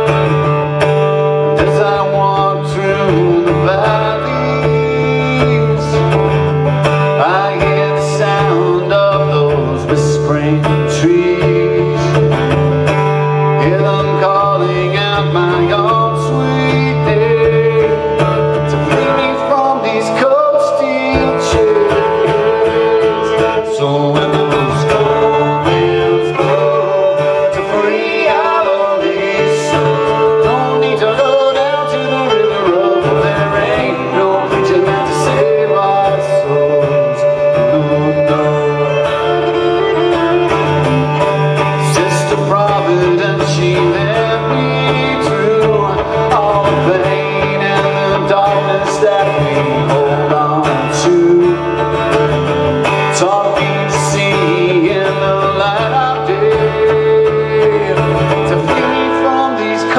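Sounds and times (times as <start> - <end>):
acoustic guitar accompaniment: 0.0 - 59.9
pitch-bending melody line: 11.1 - 53.4.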